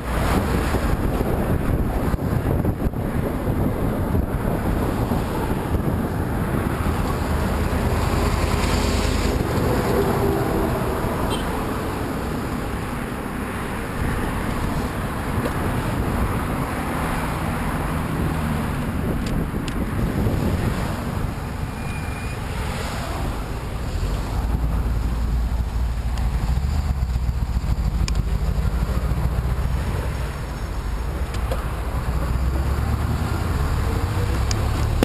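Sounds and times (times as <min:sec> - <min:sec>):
wind buffeting microphone: 0:00.0 - 0:21.7
passing vehicle hum: 0:00.0 - 0:35.0
road and traffic noise: 0:00.0 - 0:35.0.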